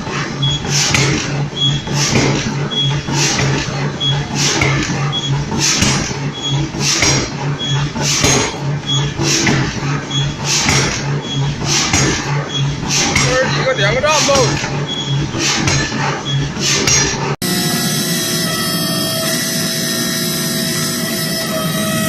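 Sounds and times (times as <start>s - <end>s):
machinery hissing bursts: 0.0s - 17.3s
low pulsing hum: 0.0s - 22.0s.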